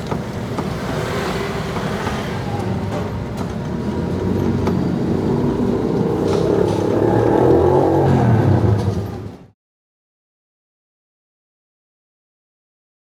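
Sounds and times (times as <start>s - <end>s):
vehicle engine running: 0.0s - 9.4s.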